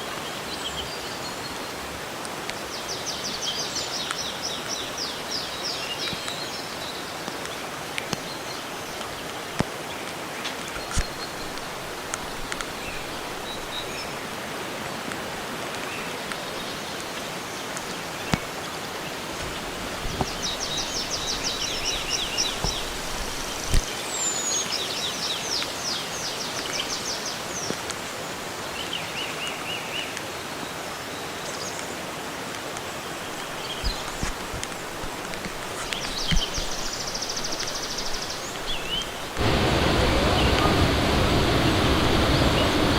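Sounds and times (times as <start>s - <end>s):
hiss of running water or rain: 0.0s - 42.9s
bird singing falling notes: 16.4s - 24.6s.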